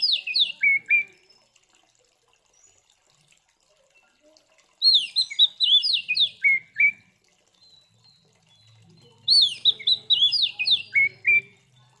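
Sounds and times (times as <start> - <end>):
songbird whistling: 4.8 - 7.0, 9.3 - 11.6.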